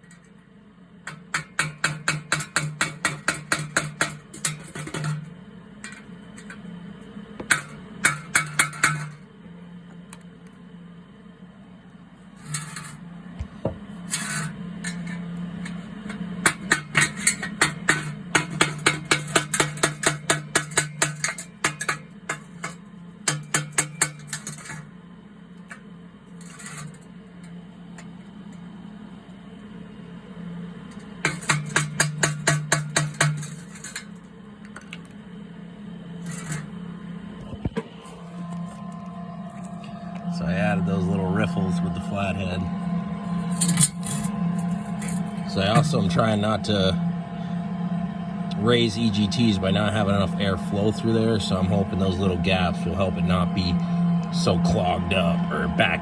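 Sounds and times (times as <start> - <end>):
steady low hum: 0.0 - 56.0
hammer striking metal: 1.1 - 5.3, 7.4 - 9.2, 14.1 - 24.9, 30.9 - 34.2, 36.2 - 36.7, 43.4 - 46.2.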